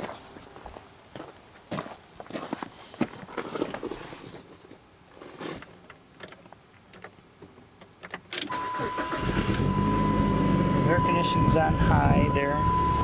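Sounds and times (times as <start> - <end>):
car door and keys clicking: 7.8 - 8.6
car engine starting: 8.3 - 11.7
steady electronic tone: 8.5 - 13.0.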